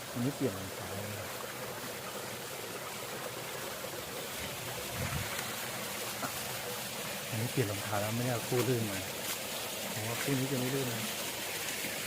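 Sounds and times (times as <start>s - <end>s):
small waterfall rushing: 0.0s - 12.0s.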